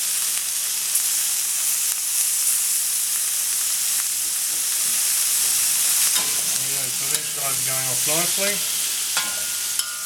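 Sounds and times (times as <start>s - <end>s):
food sizzling in a hot pan: 0.0s - 10.0s.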